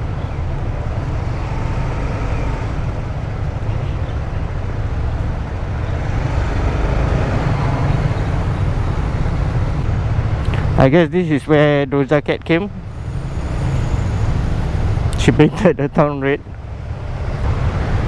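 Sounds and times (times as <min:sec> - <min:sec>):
wind and road noise: 0:00.0 - 0:18.0
motorcycle engine running: 0:00.6 - 0:09.8.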